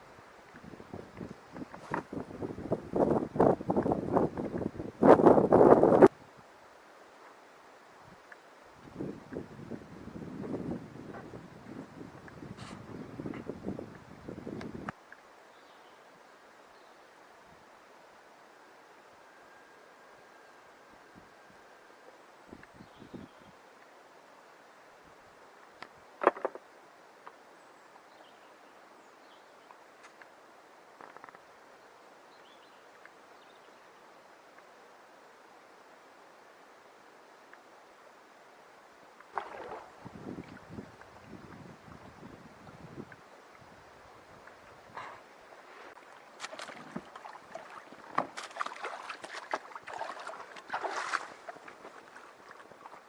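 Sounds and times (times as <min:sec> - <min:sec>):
paddle splashing in water: 0:39.2 - 0:41.7, 0:44.4 - 0:53.0.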